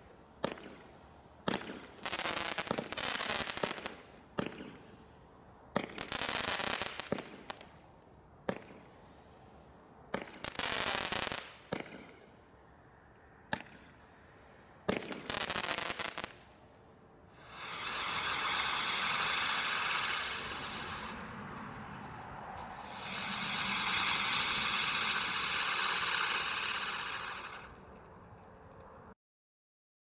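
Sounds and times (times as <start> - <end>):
fireworks crackling hiss: 0.0 - 12.5, 13.7 - 28.0
fireworks bangs: 14.9 - 16.4, 17.4 - 27.9.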